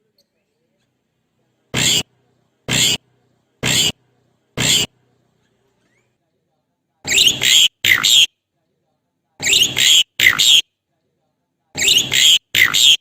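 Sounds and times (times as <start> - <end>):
starling chattering and whistling: 1.8 - 2.1, 2.7 - 3.0, 3.6 - 4.0, 4.6 - 4.9, 7.1 - 8.3, 9.4 - 10.6, 11.8 - 13.0.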